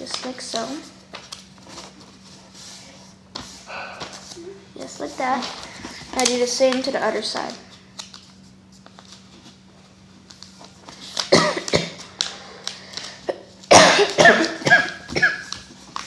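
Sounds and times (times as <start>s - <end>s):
paper being folded and creased: 8.0s - 13.1s, 15.1s - 16.0s.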